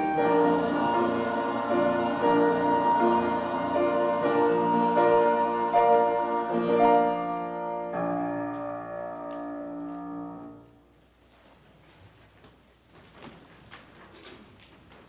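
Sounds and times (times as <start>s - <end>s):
sustained piano chords: 0.0s - 10.9s.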